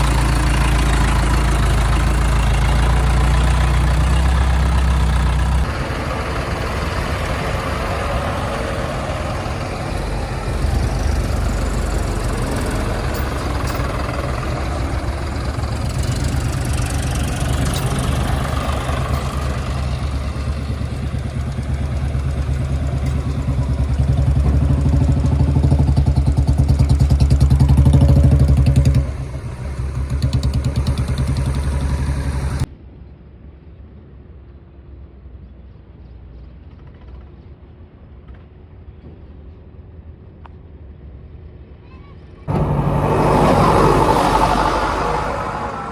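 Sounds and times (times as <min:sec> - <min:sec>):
heavy diesel engine running: 0:00.0 - 0:32.7, 0:42.5 - 0:45.9.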